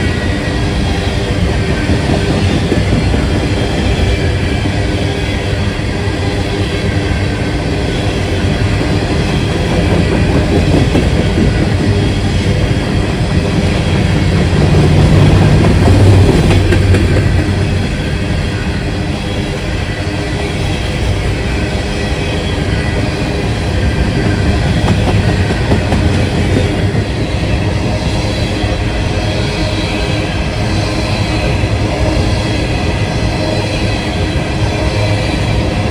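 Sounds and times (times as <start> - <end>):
freight train rolling past: 0.0 - 35.9
wheels clacking over rail joints: 8.3 - 18.8, 23.6 - 28.5.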